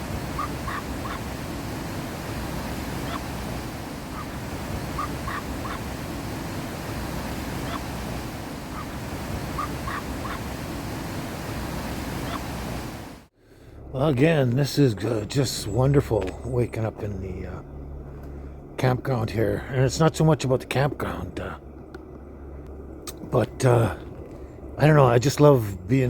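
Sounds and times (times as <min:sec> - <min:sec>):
bird short calls: 0:00.0 - 0:01.4, 0:02.5 - 0:10.6, 0:12.1 - 0:12.7
steady rushing noise: 0:00.0 - 0:15.0.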